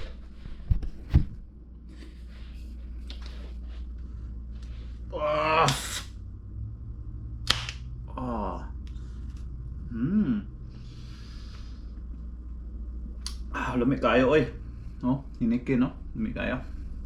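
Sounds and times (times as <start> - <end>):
steady low hum: 0.0 - 17.0
man groaning while tasting: 9.9 - 10.6
breathy hiss: 10.7 - 12.0.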